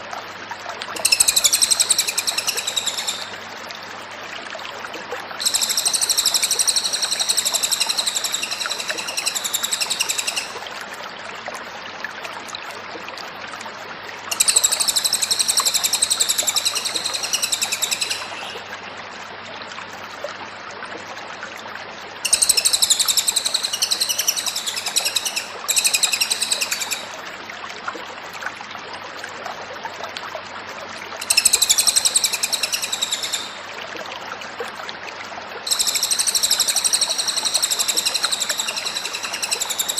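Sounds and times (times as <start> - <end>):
steady background hiss: 0.9 - 4.4, 5.4 - 10.6, 14.3 - 18.7, 22.2 - 27.4
bird singing: 1.0 - 3.3, 5.4 - 10.6, 14.3 - 18.6, 22.3 - 27.1, 31.2 - 33.6, 35.7 - 39.9.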